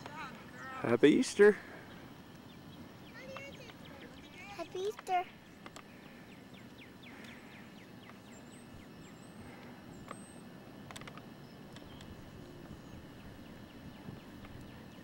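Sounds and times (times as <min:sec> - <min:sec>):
faint birdsong: 0:00.0 - 0:15.0
wind on microphone: 0:11.8 - 0:15.0.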